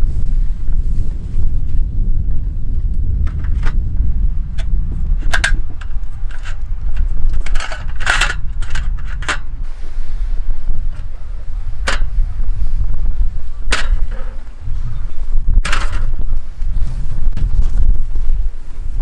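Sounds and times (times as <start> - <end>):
wind buffeting microphone: 0.0 - 19.0
metallic clinks and scrapes: 5.2 - 9.5.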